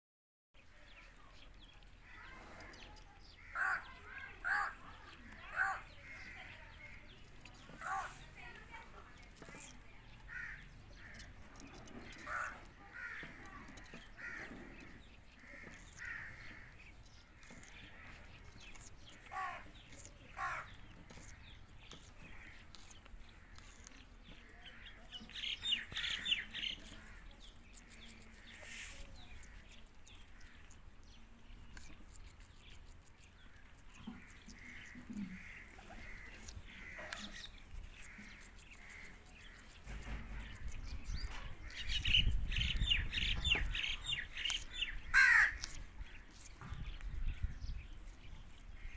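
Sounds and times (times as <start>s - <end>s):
parrot calling: 3.4s - 6.6s, 7.8s - 8.6s, 12.2s - 13.2s, 19.2s - 20.8s.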